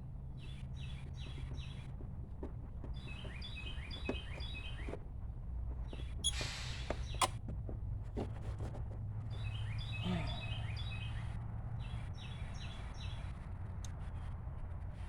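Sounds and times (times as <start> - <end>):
low outdoor rumble: 0.0 - 15.0
songbird chirping: 0.2 - 5.0, 9.3 - 13.2.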